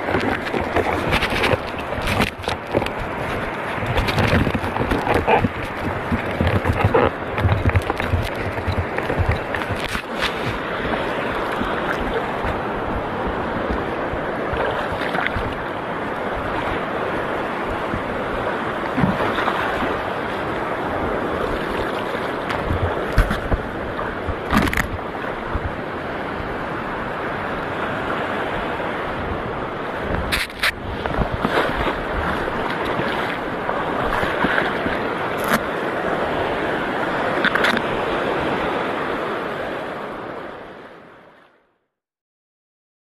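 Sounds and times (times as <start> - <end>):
shallow sea water washing: 0.0 - 39.8
wind on microphone: 0.0 - 41.3.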